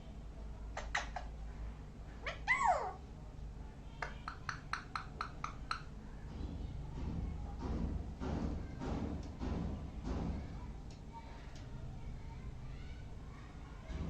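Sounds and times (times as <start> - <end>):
parrot clicks: 4.0 - 5.9.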